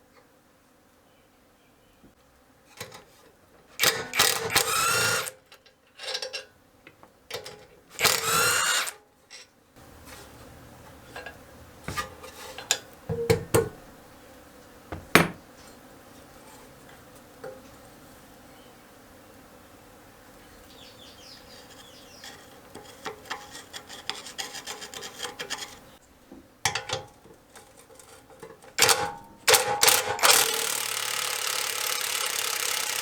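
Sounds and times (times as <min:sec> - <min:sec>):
mechanical ratcheting: 0:03.8 - 0:05.4, 0:07.4 - 0:09.0, 0:28.7 - 0:33.0
metal parts knocking: 0:26.6 - 0:33.0.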